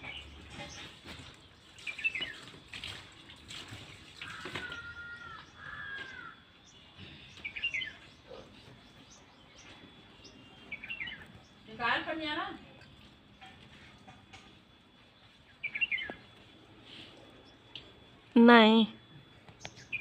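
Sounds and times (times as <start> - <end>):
birds chirping: 0.0 - 2.6, 4.1 - 20.0
whistled bird calls: 15.5 - 16.3, 19.6 - 20.0.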